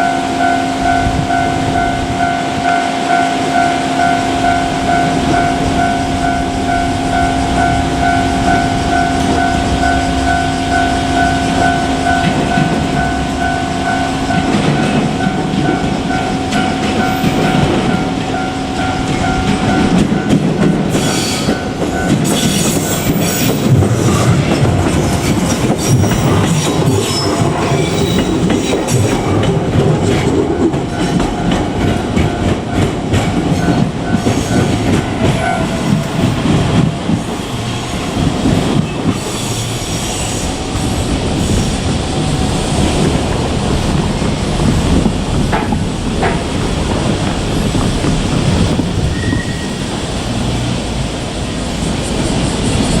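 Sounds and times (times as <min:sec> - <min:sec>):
level crossing warning bell: 0:00.0 - 0:37.2
train wheels clattering over rail joints: 0:05.3 - 0:53.0.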